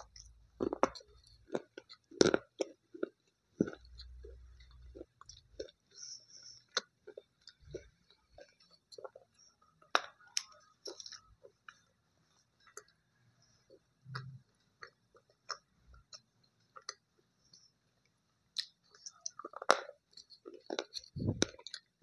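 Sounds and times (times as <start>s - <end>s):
person chewing crunchy pieces: 0.0s - 13.0s, 18.6s - 22.0s.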